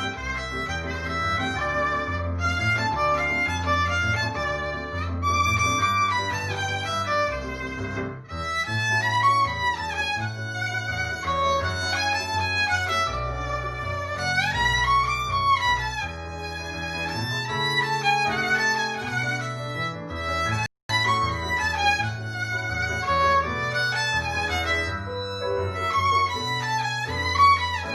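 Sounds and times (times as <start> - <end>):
low accompaniment: 0.0 - 27.9
violin melody: 0.0 - 27.9.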